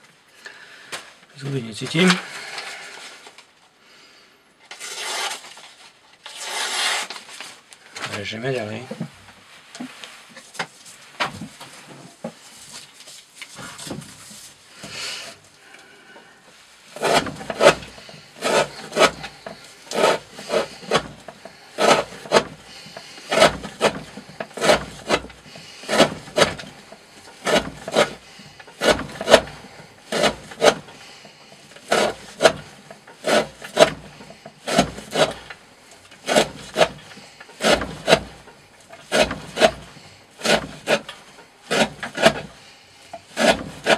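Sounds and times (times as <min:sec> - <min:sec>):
knife slicing through rope: 0:04.7 - 0:05.7, 0:06.3 - 0:07.4, 0:17.0 - 0:31.0, 0:31.8 - 0:35.5, 0:36.2 - 0:42.6, 0:43.3 - 0:43.9.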